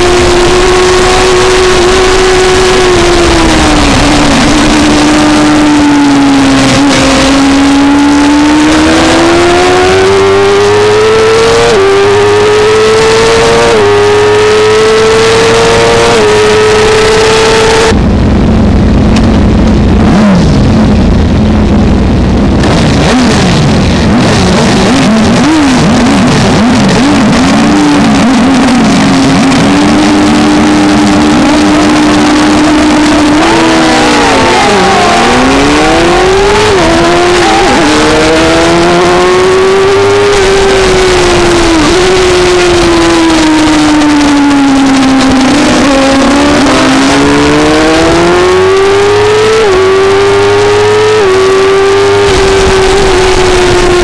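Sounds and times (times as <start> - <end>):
many engines revving together: 0.0 - 18.0, 22.4 - 54.0
motorcycle engine revving: 0.0 - 54.0
rushing noise: 17.9 - 49.4.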